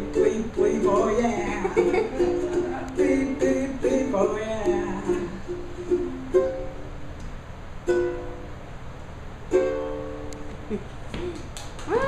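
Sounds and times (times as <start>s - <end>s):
ukulele strummed chords: 0.0s - 7.2s, 7.8s - 8.6s, 9.5s - 10.8s.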